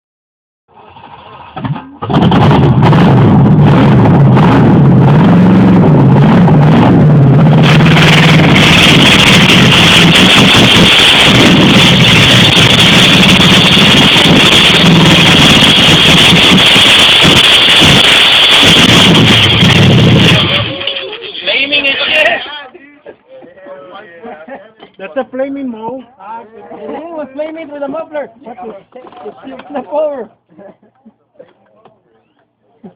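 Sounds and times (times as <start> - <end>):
engine running loud: 0.7 - 21.1.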